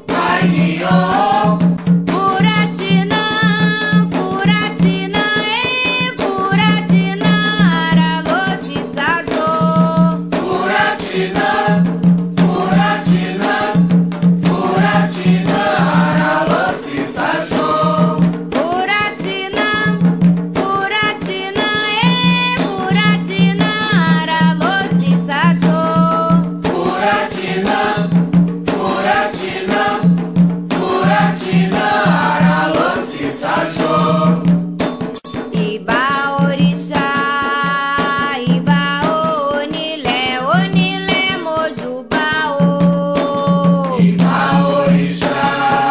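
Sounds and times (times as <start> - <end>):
group of voices singing: 0.0 - 34.6, 35.6 - 45.9
hand drums: 0.0 - 45.9
struck rattle or bell: 34.6 - 40.4.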